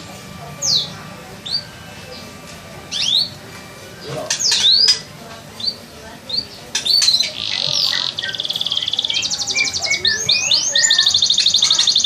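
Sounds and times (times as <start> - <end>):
songbird whistled chirps: 2.9 - 3.4, 4.3 - 12.0.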